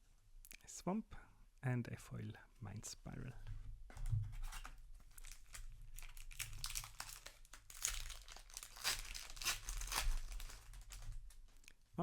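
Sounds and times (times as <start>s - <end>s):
foil wrapper crinkling: 4.4s - 11.7s.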